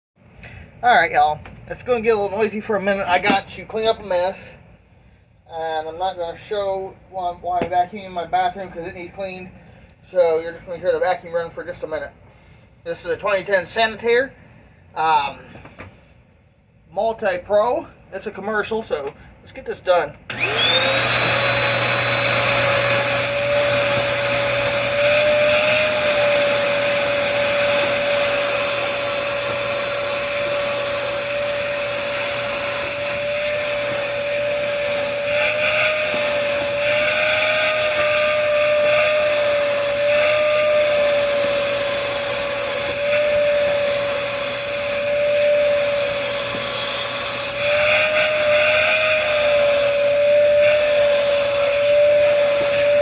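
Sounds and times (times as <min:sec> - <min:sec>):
vacuum cleaner motor whining: 0:20.3 - 0:53.0.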